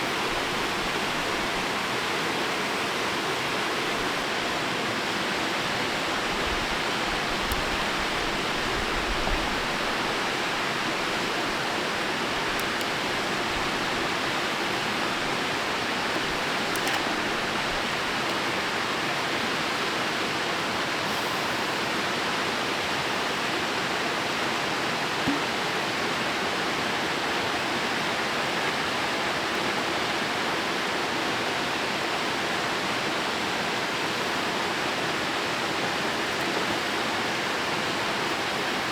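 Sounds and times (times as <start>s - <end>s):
faint clicks: 16.1s - 18.4s.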